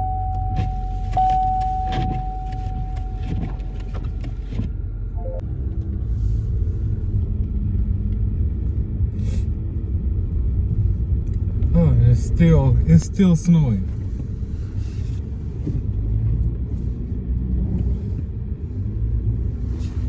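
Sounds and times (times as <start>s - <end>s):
car road rumble: 0.0s - 20.0s.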